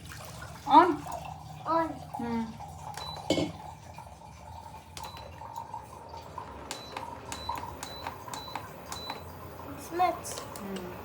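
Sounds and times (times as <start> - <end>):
button clicks with short beeps: 6.7 - 9.3.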